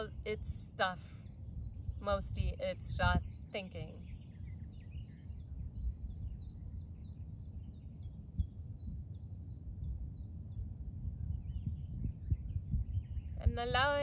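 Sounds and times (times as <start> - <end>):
low outdoor rumble: 8.2 - 14.0.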